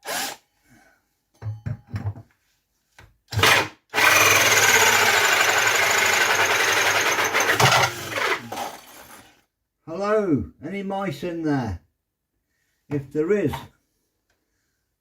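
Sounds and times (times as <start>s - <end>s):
cordless drill drilling: 0.0s - 0.4s, 3.3s - 9.3s.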